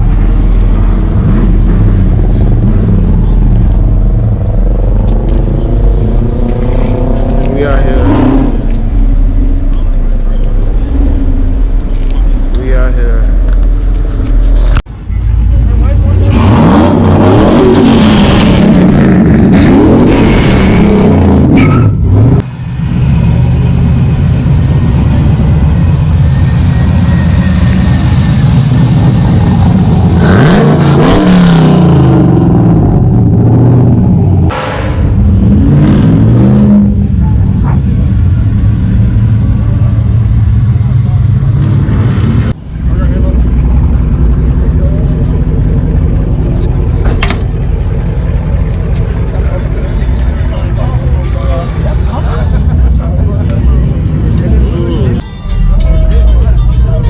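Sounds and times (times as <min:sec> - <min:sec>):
truck engine running: 0:00.0 - 0:17.2, 0:31.8 - 0:57.0.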